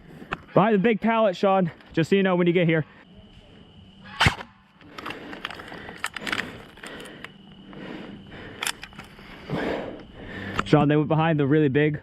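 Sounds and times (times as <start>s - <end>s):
crackling rustle with small clicks: 4.8s - 7.4s.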